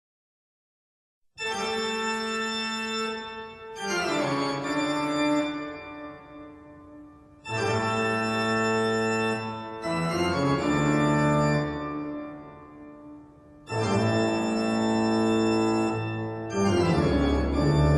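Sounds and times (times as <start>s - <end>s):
organ-like keyboard chords: 1.4s - 17.9s.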